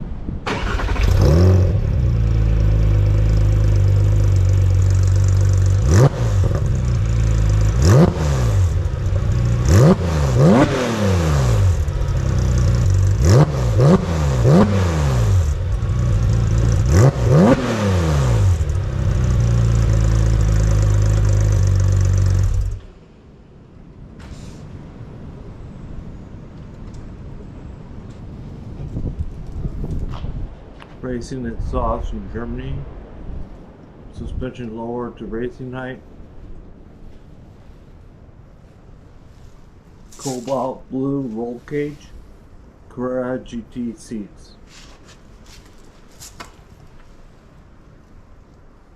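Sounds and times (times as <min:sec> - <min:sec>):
car engine starting and idling: 0:00.4 - 0:23.0
car engine revving: 0:00.5 - 0:22.9.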